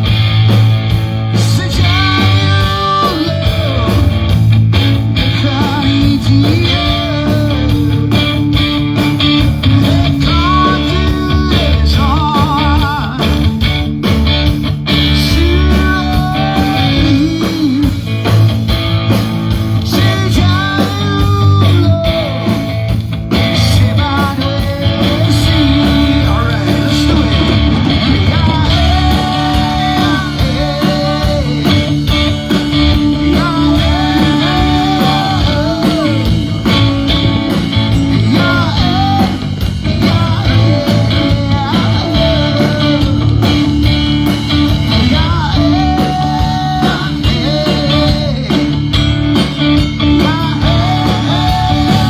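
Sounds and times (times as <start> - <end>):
bass guitar: 0.0 - 52.0
live rock band playing: 0.0 - 52.0
lead guitar melody: 22.0 - 52.0.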